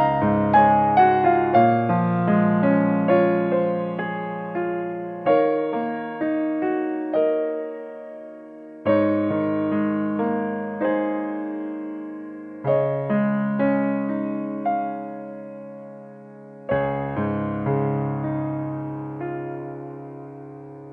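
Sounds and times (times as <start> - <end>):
slow piano music: 0.0 - 20.9.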